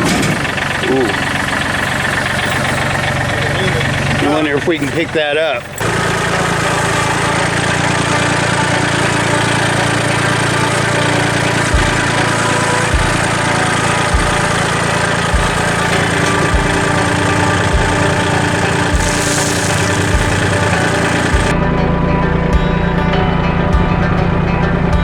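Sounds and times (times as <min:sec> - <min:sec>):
tractor engine idling: 0:00.0 - 0:21.6.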